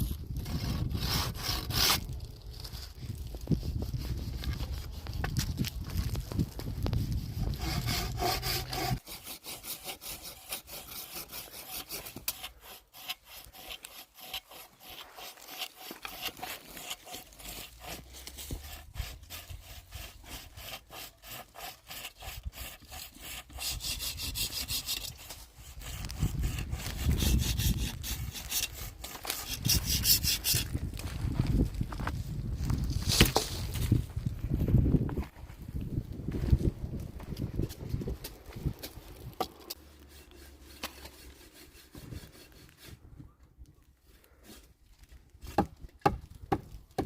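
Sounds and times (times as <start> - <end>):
hand saw cutting wood: 0.4 - 2.2, 7.2 - 30.8, 39.2 - 43.0.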